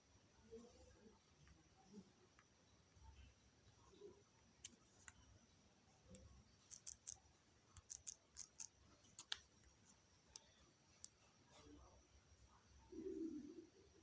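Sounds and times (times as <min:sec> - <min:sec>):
fingertips tapping touchscreen: 0:06.1 - 0:07.2, 0:07.8 - 0:11.2.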